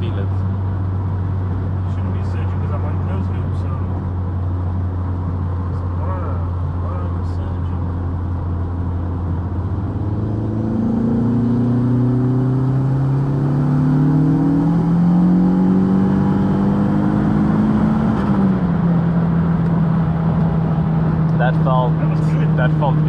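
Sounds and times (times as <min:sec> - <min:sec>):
turbocharged engine accelerating: 0:00.0 - 0:23.0.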